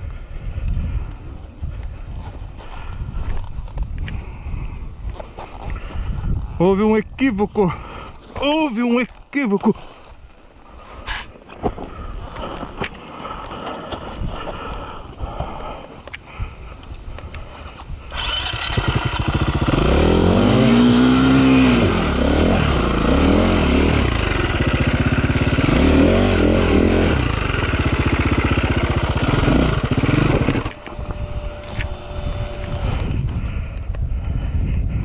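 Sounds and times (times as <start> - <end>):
dirt bike engine revving: 18.1 - 33.1.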